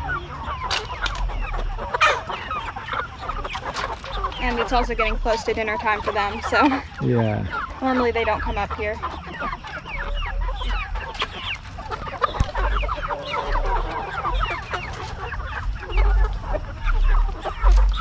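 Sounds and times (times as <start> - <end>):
chickens clucking and calling: 0.0 - 18.0.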